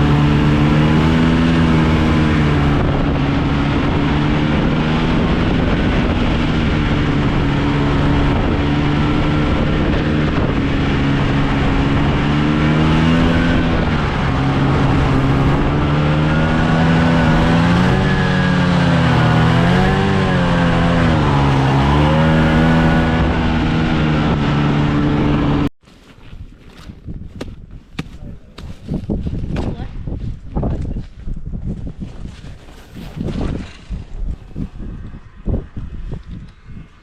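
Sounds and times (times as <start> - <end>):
vehicle engine running: 0.0 - 25.7.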